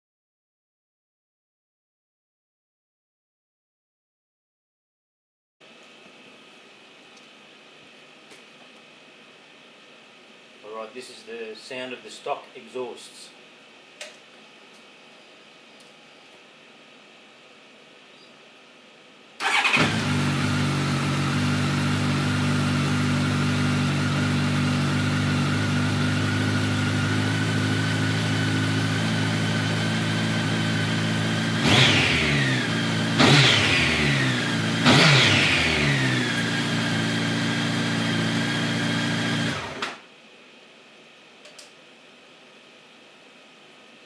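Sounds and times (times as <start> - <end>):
motorcycle engine idling and revving: 19.4 - 39.8.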